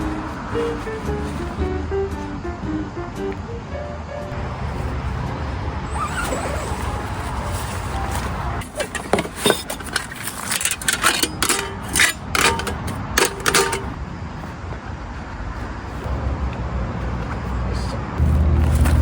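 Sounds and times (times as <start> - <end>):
camping gear clicking and clinking: 0.0 - 1.6, 5.9 - 14.1, 18.2 - 19.0
steady low rumble: 0.0 - 6.0.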